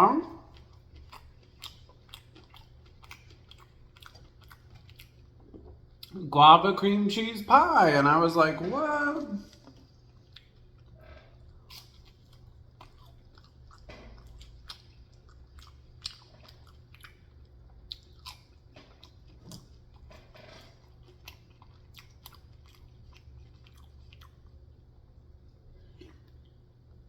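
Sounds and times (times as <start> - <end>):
steady low hum: 0.0 - 27.0
wet chewing and mouth smacks: 0.4 - 6.2, 9.5 - 24.9, 25.7 - 26.9.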